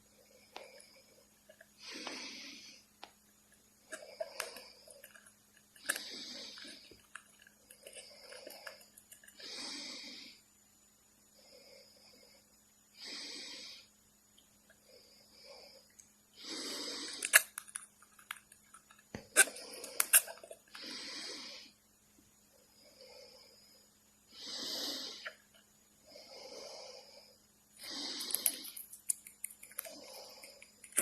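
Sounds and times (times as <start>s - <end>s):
snore-like breathing: 3.9s - 10.4s, 16.4s - 17.6s, 19.3s - 21.8s, 22.8s - 28.8s, 29.7s - 31.0s.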